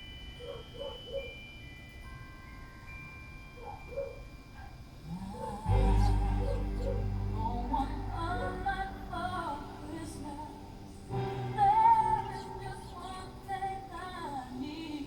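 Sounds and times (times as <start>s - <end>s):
woman singing slow melody: 5.0s - 15.0s
soft musical accompaniment: 5.2s - 15.0s.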